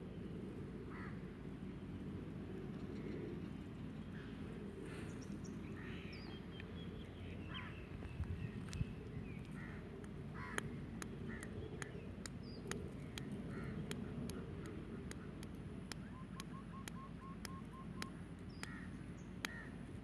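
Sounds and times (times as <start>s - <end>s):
steady low rumble: 0.0s - 20.0s
birds calling: 2.7s - 20.0s
sharp ticks: 9.4s - 20.0s.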